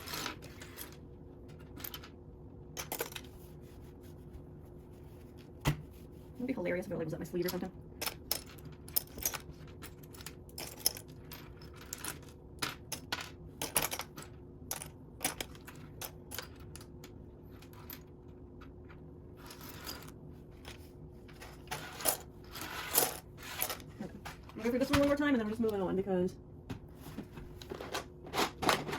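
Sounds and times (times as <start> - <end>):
plastic pieces clicking and rattling: 7.5 - 18.0.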